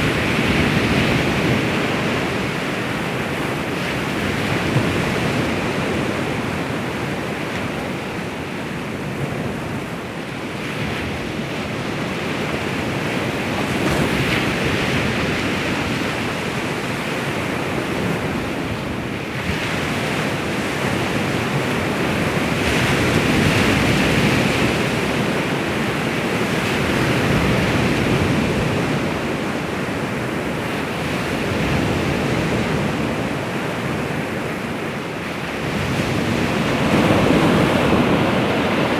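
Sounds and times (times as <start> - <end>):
waves washing onto shore: 10.8 - 38.9.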